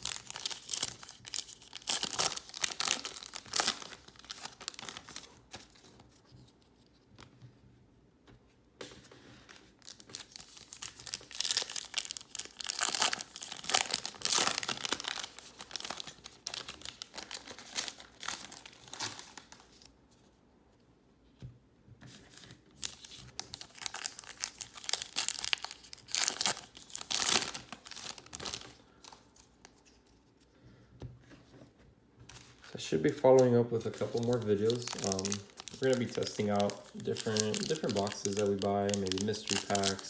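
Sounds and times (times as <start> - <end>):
foil wrappers tearing and crinkling: 0.0 - 5.4, 9.8 - 19.8, 22.8 - 29.2, 32.4 - 40.0.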